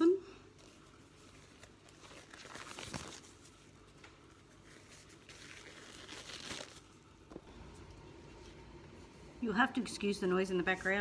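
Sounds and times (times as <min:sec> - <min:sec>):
plastic bags crinkling: 0:00.8 - 0:07.1.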